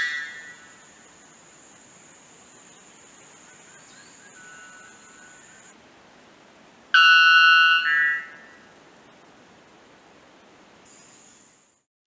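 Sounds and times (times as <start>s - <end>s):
steady high-pitched tone: 0.0s - 1.8s, 7.0s - 8.6s
bird ringing two-note song: 7.0s - 8.6s.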